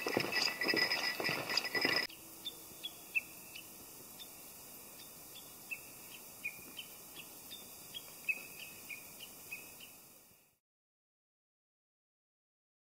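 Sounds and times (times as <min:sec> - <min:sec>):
small birds chirping: 0:00.0 - 0:10.6
faint hiss: 0:02.2 - 0:10.6.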